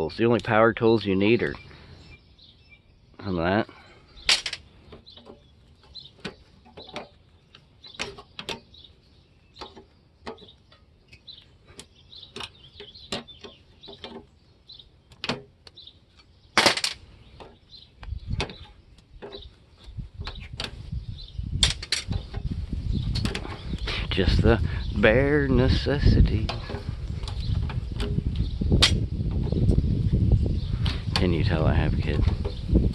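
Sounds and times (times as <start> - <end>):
low rumbling handling noise: 0.0 - 32.9.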